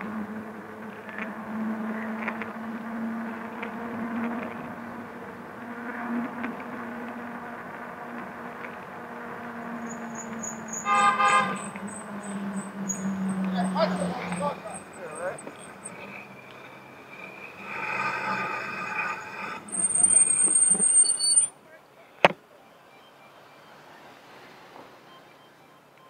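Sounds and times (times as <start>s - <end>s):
electric bike hum: 0.0s - 21.5s
city street traffic: 0.0s - 26.0s
vehicle horn honking: 10.7s - 11.7s
faint high beeps: 22.5s - 26.0s.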